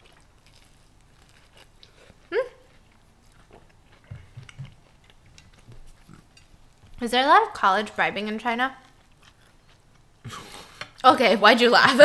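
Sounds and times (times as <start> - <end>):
person chewing noodles: 0.0 - 6.9, 8.8 - 11.0.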